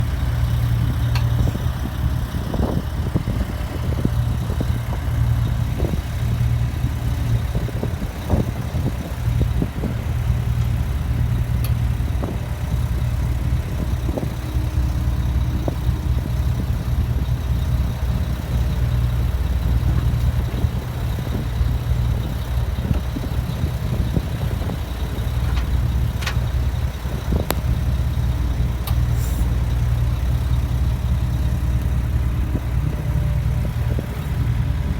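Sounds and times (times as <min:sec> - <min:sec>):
heavy equipment engine humming: 0:00.0 - 0:34.9
knocks and clanks: 0:25.1 - 0:26.6.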